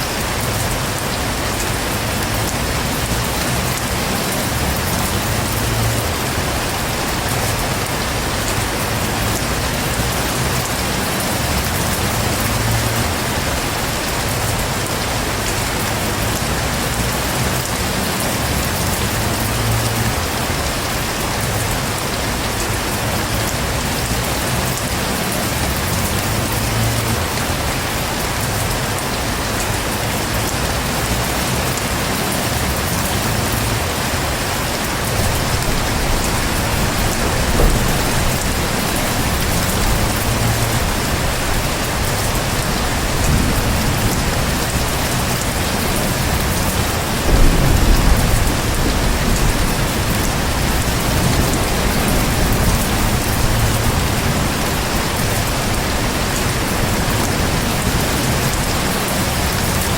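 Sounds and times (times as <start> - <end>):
heavy rain: 0.0 - 59.9
thunder rumbling: 32.5 - 59.9.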